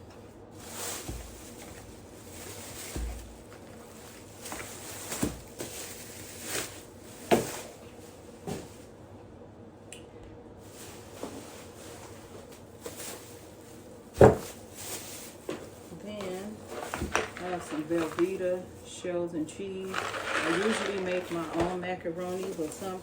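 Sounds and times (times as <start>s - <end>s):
items knocking on hard surface: 14.2s - 14.6s, 16.2s - 18.4s, 19.9s - 22.8s.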